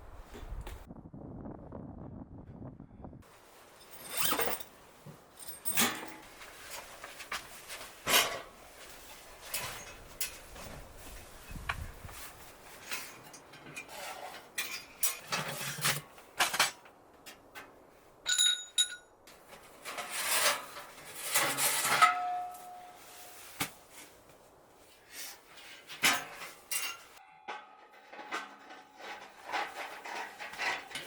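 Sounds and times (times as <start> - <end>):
metal cookware clinking and scraping: 5.4 - 6.4, 12.9 - 16.7, 19.8 - 23.1, 25.9 - 31.0
short metallic ring: 18.3 - 19.1.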